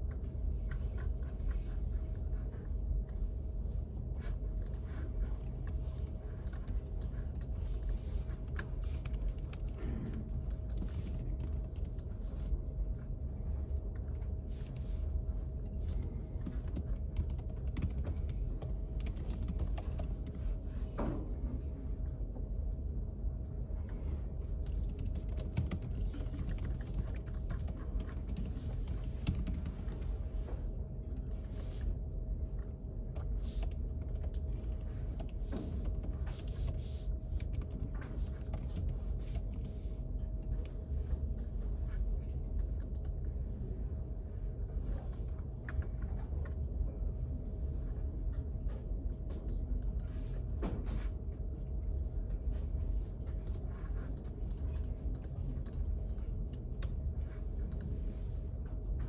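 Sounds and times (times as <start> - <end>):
typing on computer keyboard: 8.5 - 12.4, 15.9 - 20.4, 24.6 - 30.2, 33.2 - 39.7.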